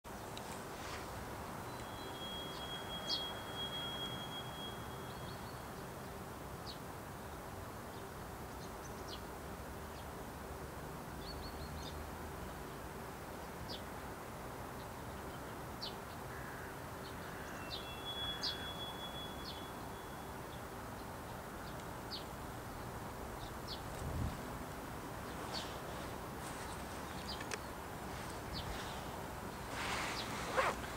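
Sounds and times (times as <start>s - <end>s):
faint constant hum: 0.1s - 30.9s
short bird chirps: 1.7s - 5.6s.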